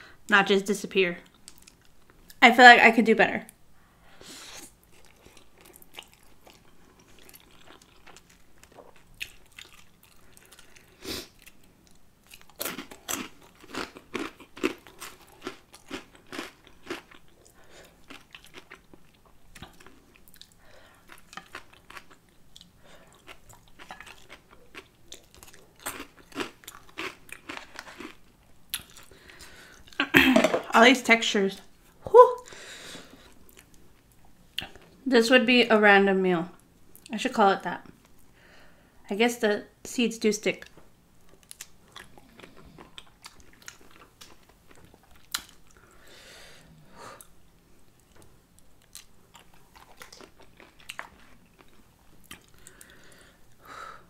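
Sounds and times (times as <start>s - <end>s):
chewing noodles and crunchy snacks: 4.5s - 30.1s, 41.2s - 46.0s, 48.0s - 53.0s.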